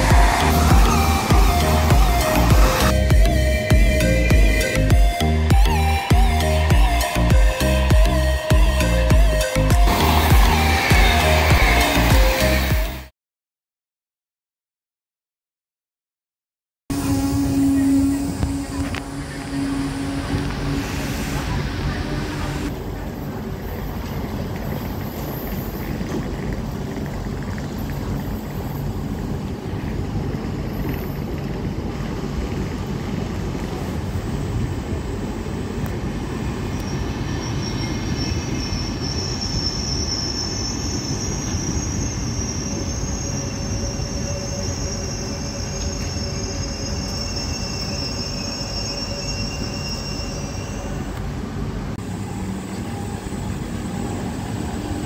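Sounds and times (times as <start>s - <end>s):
high wheel squeal: 0.0s - 5.0s, 6.6s - 12.8s, 36.2s - 51.4s
train rolling rumble: 0.0s - 13.1s, 16.9s - 55.0s.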